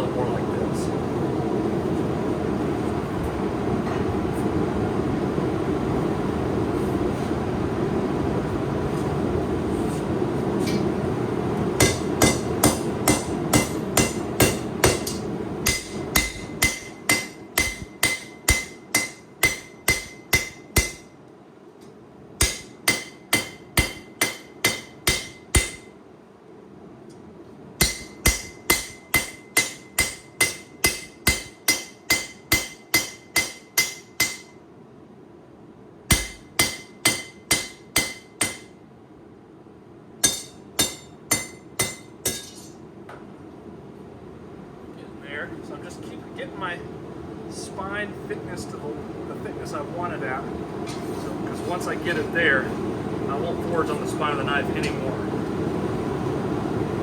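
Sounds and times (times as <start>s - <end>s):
hammer striking steel on anvil: 11.8s - 21.2s, 22.4s - 25.9s, 27.8s - 34.6s, 36.1s - 38.8s, 40.2s - 42.8s.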